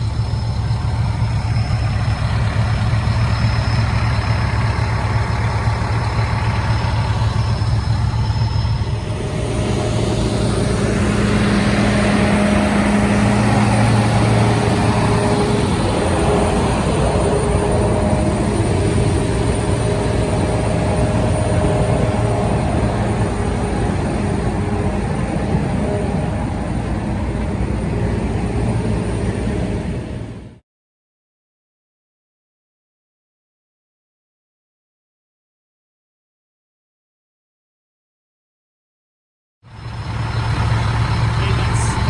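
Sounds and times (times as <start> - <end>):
diesel engine droning: 0.0 - 30.6, 39.7 - 42.0.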